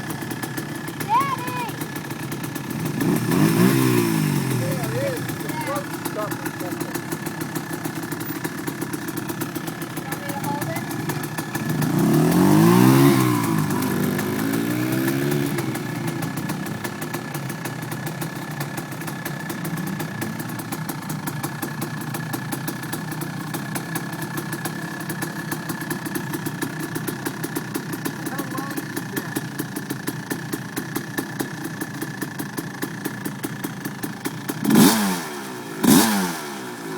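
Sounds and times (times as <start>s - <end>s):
dirt bike engine idling and revving: 0.0s - 36.9s.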